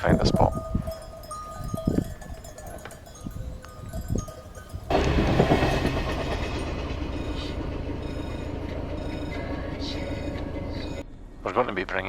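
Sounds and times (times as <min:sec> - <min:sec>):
loud steady rumbling: 0:04.2 - 0:11.5.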